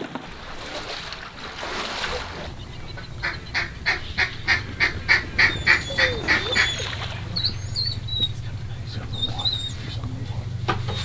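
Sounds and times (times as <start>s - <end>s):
steady low hum: 0.1s - 11.0s
duck quacks: 1.6s - 11.0s
faint thin whistles: 4.5s - 11.0s.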